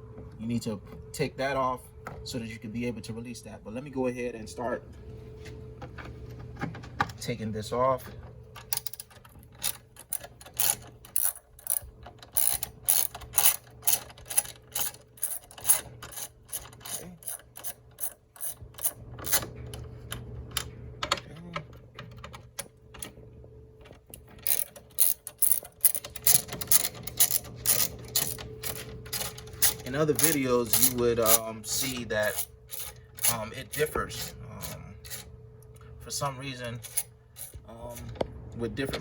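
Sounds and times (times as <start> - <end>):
faint steady hum: 0.0 - 39.0
hand ratchet clicking: 8.7 - 19.4, 24.4 - 35.3, 36.8 - 37.6.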